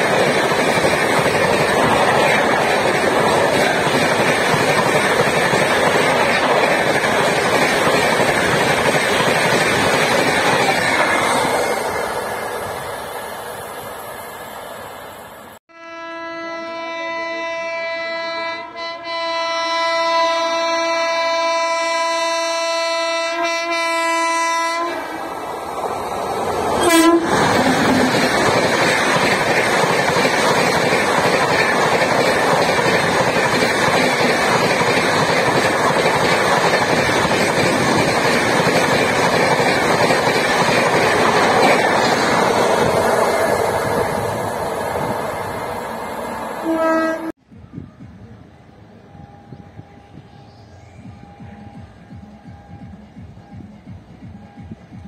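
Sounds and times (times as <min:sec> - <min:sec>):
train wheels clickety-clack: 0:00.0 - 0:12.9, 0:25.7 - 0:45.3, 0:49.5 - 0:55.0
train passing at high speed: 0:00.0 - 0:15.6, 0:20.8 - 0:55.0
locomotive horn blast: 0:15.7 - 0:25.3, 0:26.8 - 0:27.6, 0:46.6 - 0:47.4.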